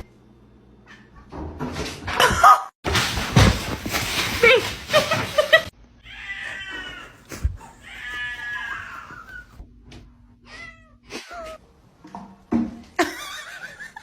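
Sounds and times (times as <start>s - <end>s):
cat meowing: 6.1s - 9.6s.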